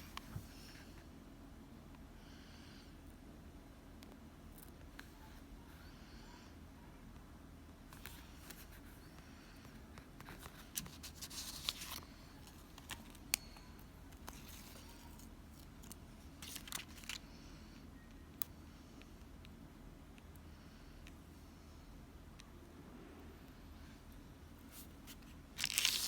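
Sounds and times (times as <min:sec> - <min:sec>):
paper rustling: 0:10.2 - 0:13.2, 0:14.2 - 0:17.2, 0:24.8 - 0:26.0.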